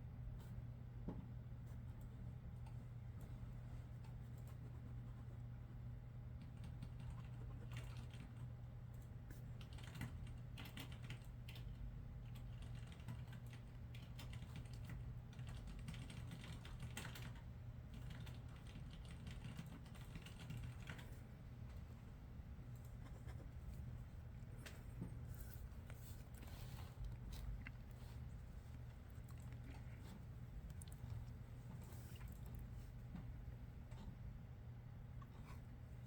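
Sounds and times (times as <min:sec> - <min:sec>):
steady low hum: 0:00.0 - 0:36.0
typing on computer keyboard: 0:06.4 - 0:21.2.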